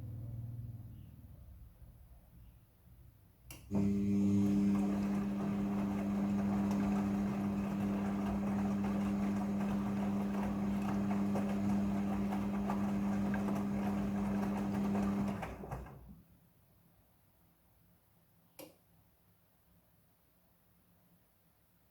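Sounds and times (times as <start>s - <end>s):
washing machine running: 3.7s - 16.2s.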